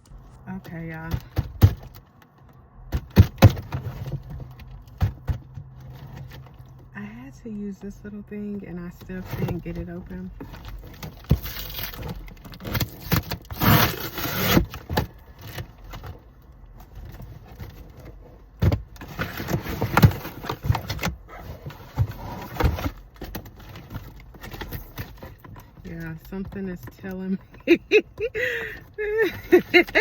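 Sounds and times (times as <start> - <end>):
cardboard box being torn open: 12.6 - 14.8.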